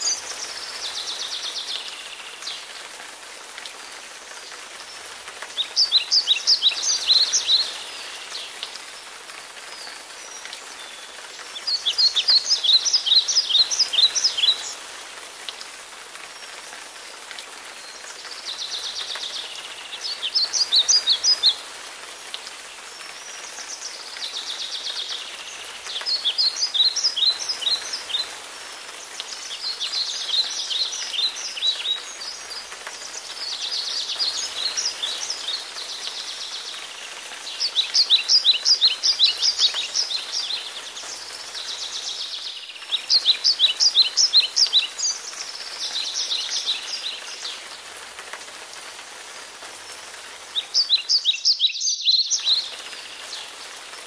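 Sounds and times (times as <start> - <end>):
songbird singing: 0.0 - 49.1, 49.8 - 54.0.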